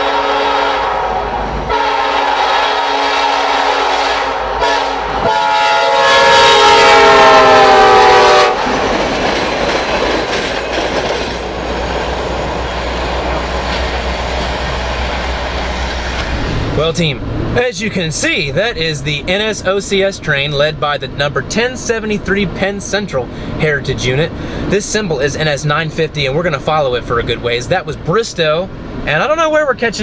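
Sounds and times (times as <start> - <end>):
locomotive air horn blasts: 0.0 - 8.7
train rumble and wheels on rail: 0.0 - 30.0.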